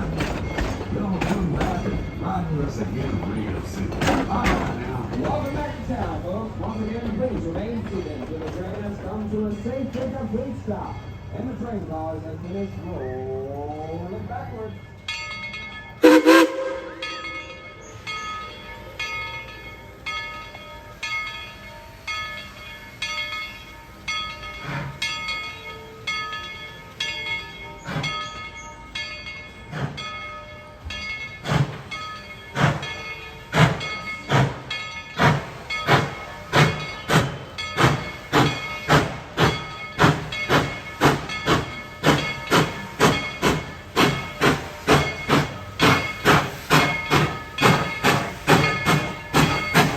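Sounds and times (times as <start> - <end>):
steam locomotive exhaust chuffing: 15.9 - 17.7, 26.8 - 28.4, 29.5 - 30.2, 31.2 - 49.9.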